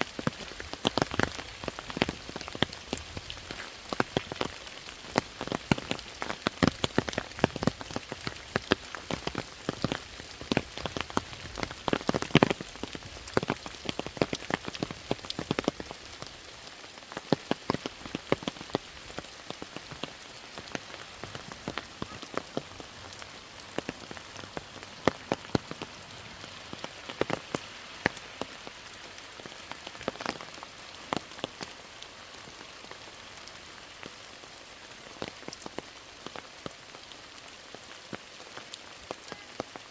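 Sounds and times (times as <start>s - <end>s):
rain falling: 0.0s - 39.9s
raindrops striking close by: 0.0s - 39.9s.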